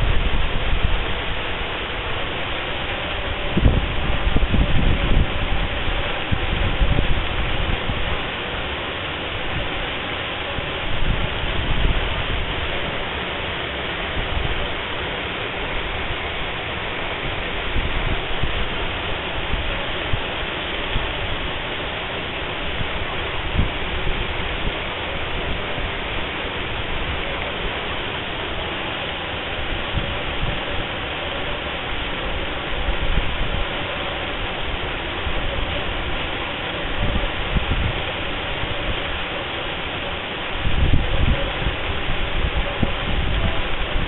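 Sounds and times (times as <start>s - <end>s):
waterfall pouring: 0.0s - 44.0s.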